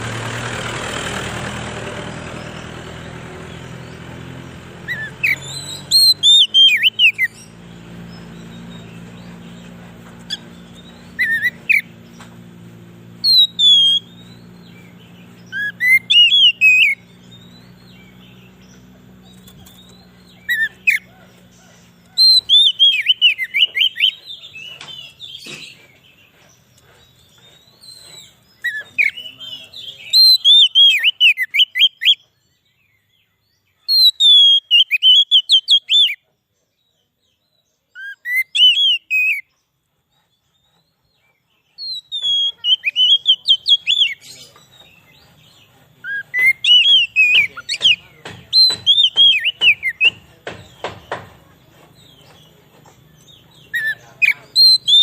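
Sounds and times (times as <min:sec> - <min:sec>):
bird singing whistled phrases: 0:04.9 - 0:09.7, 0:10.3 - 0:12.0, 0:13.2 - 0:21.3, 0:22.1 - 0:25.8, 0:27.8 - 0:32.2, 0:33.8 - 0:36.2, 0:38.0 - 0:39.5, 0:41.7 - 0:50.2, 0:53.2 - 0:55.0.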